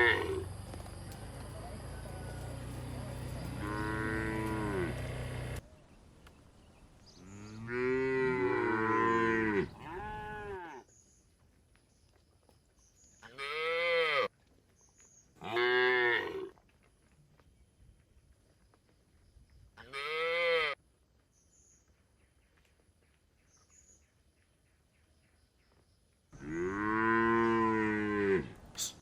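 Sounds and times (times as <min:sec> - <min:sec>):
cattle mooing: 0:02.9 - 0:05.6, 0:07.6 - 0:10.8, 0:26.4 - 0:28.6.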